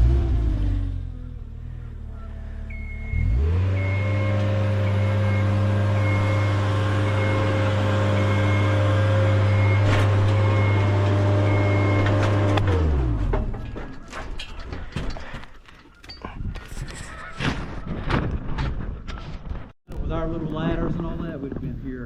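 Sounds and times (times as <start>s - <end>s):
machine motor running: 2.5s - 13.1s
high-pitched warning beep: 2.7s - 12.1s.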